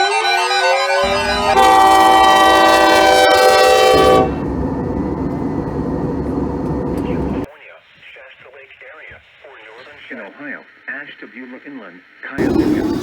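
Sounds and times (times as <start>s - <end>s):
locomotive air horn chord: 0.0s - 7.5s
locomotive engine rumble: 1.0s - 7.5s.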